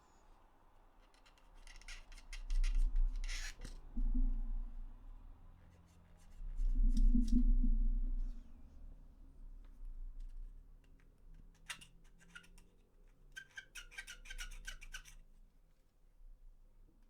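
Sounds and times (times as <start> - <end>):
small plastic clicks: 10.8 - 15.2.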